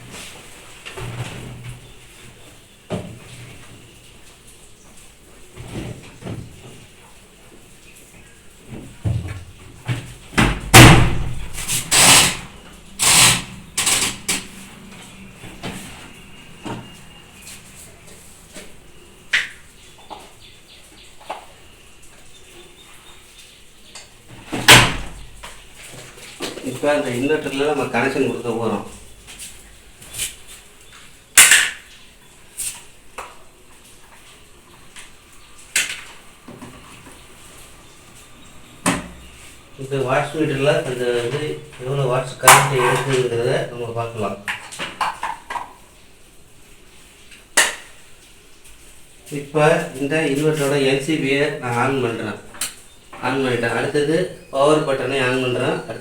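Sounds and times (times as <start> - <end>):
clothes knocking in washing machine: 8.7 - 12.2
swishing rustles of clothes: 28.9 - 30.9.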